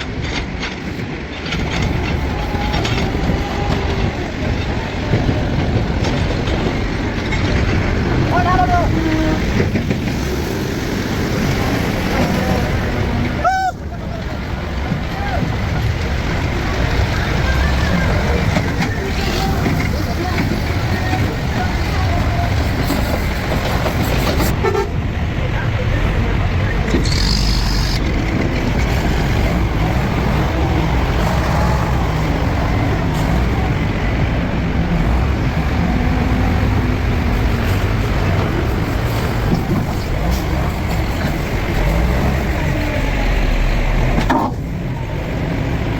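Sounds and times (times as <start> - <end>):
heavy machinery rumbling: 0.0 - 45.9
diesel engine running: 26.1 - 45.9
high-pitched squeal: 26.9 - 28.2.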